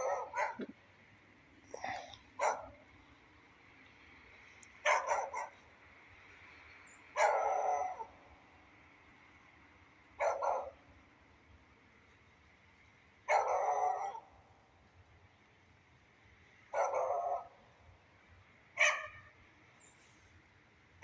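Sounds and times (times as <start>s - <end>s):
dog barking: 0.0s - 0.7s, 1.8s - 2.8s, 4.8s - 5.7s, 7.2s - 8.2s, 10.2s - 10.8s, 13.3s - 14.3s, 16.7s - 17.6s, 18.8s - 19.3s.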